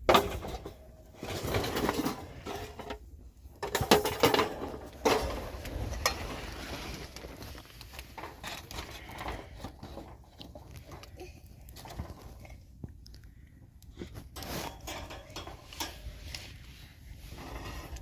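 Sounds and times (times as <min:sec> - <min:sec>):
objects knocking and clattering: 0:00.0 - 0:06.5.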